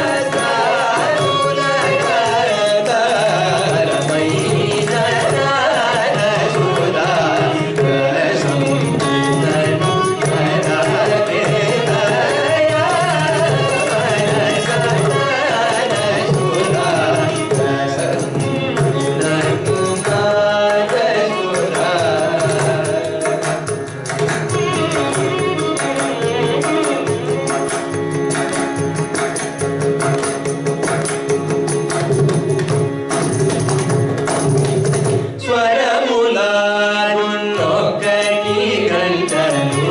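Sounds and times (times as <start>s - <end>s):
person singing: 0.0s - 23.6s, 35.4s - 39.9s
violin: 0.0s - 39.9s.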